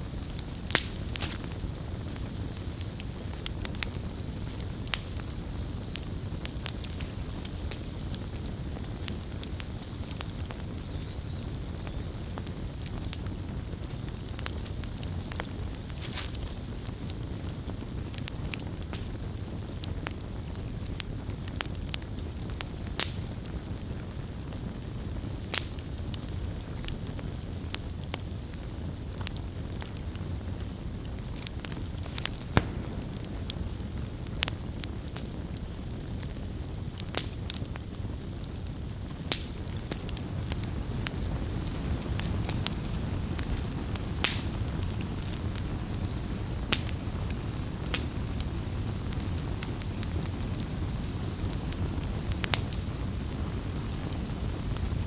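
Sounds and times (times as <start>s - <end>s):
campfire crackling and popping: 0.0s - 55.0s
fire low rush: 31.1s - 35.0s.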